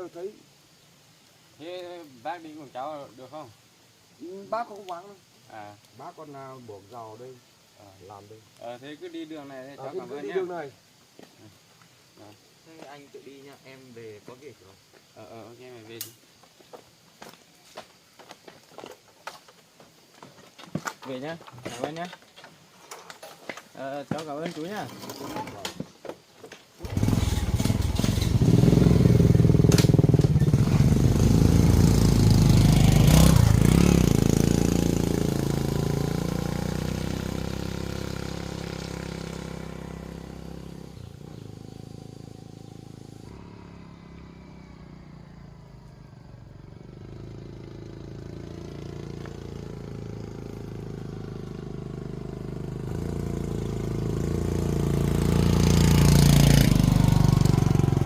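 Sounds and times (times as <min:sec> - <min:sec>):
motorcycle engine: 0:26.8 - 0:58.0.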